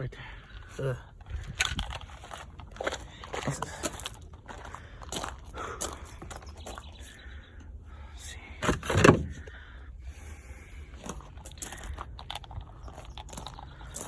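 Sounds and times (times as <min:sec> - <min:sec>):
car door thump: 0:08.6 - 0:09.4.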